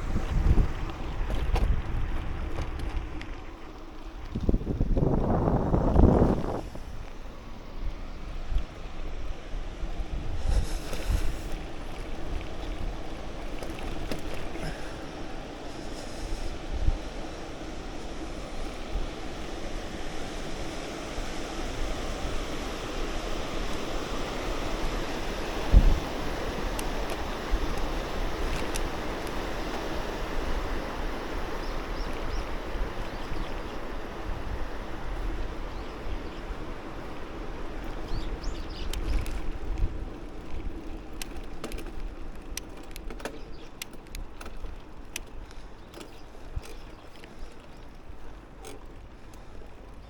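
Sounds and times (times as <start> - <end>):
wind rushing over microphone: 0.0 - 3.4, 4.1 - 42.2
light clicks and ticks: 40.5 - 47.8.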